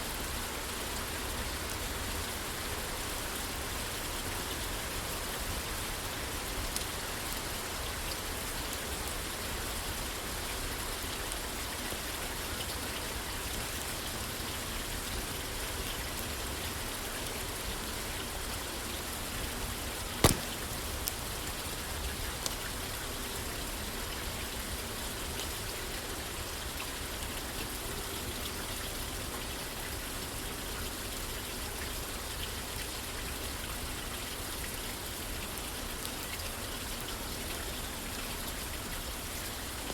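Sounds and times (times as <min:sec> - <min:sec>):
rain falling on a roof: 0:00.0 - 0:39.9
sharp pop: 0:20.2 - 0:20.9.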